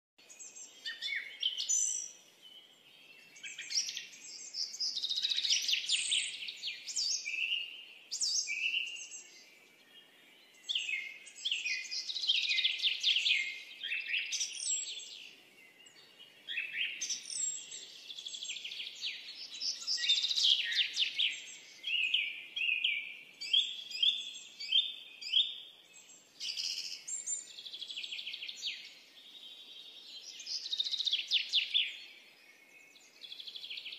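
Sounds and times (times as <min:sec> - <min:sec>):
birds singing: 0:00.2 - 0:33.9.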